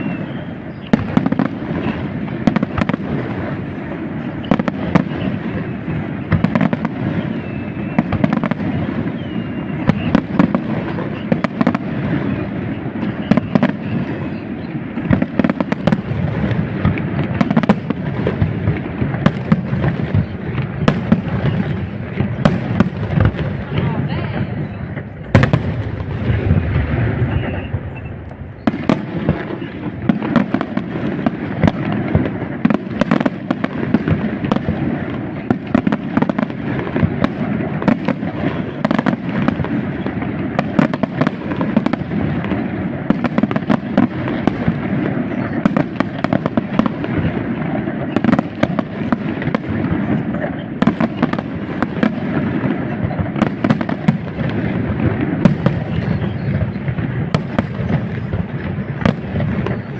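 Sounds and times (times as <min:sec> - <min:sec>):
fireworks bursts and crackle: 0:00.0 - 0:59.9.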